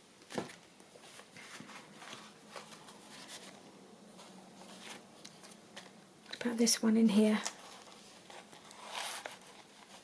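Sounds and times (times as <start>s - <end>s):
paper rustling and tapping: 0.2s - 3.6s.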